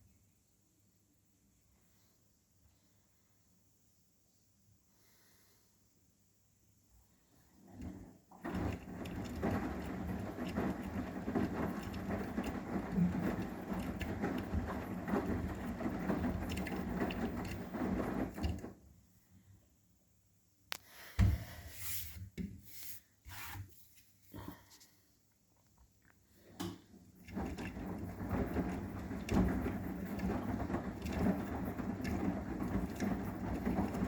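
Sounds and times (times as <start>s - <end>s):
washing machine drum turning: 7.6s - 18.8s, 26.6s - 34.0s.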